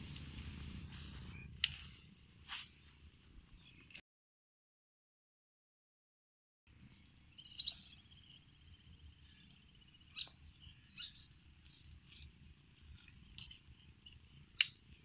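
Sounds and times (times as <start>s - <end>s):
birds chirping: 6.9s - 15.0s.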